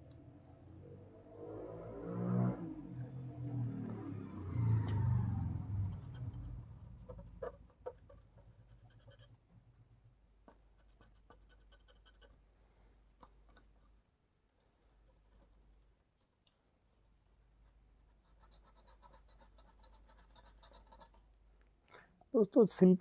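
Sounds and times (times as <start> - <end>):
falling pitched tone: 0.8 - 6.4
brush scrubbing circuit board: 5.8 - 9.5, 10.5 - 12.4, 18.0 - 21.3.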